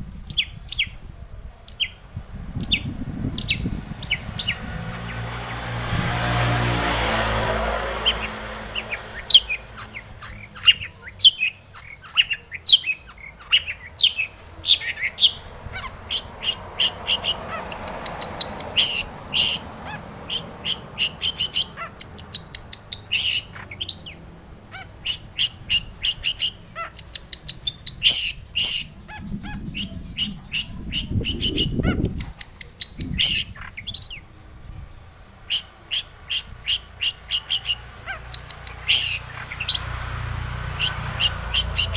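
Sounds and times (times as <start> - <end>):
rush of noise: 0.0 - 11.2, 23.5 - 35.5
bird singing chirps and whistles: 2.6 - 5.2, 8.1 - 19.6, 20.3 - 24.2, 24.8 - 34.2.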